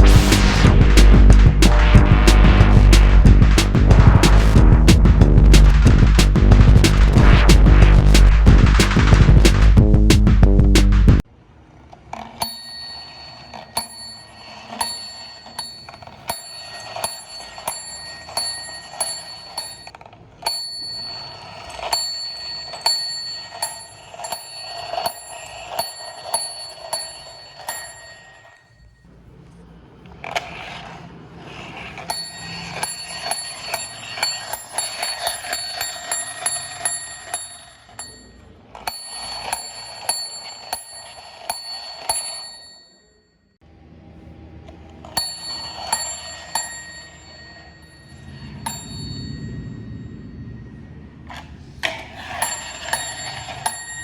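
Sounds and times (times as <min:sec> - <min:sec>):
toy mechanism rattling: 0:11.7 - 0:28.6, 0:30.2 - 0:42.4
small bell dinging: 0:45.2 - 0:50.6.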